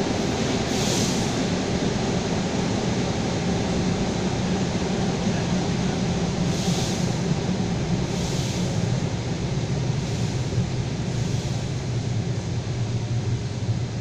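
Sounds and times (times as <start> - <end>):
train wheels rumbling on rails: 0.0 - 14.0
brief hiss: 0.7 - 1.4.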